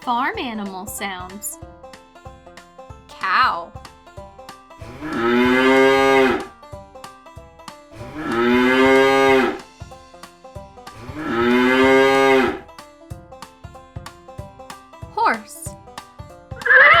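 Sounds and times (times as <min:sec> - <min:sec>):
background music with plucked notes: 0:00.0 - 0:17.0
cow mooing: 0:04.8 - 0:06.5, 0:08.0 - 0:09.6, 0:11.0 - 0:12.6, 0:16.6 - 0:17.0.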